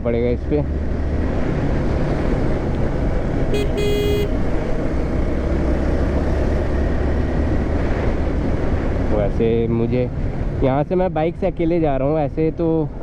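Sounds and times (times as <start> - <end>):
motorcycle road and wind noise: 0.0 - 13.0
vehicle horn toots: 3.5 - 4.4.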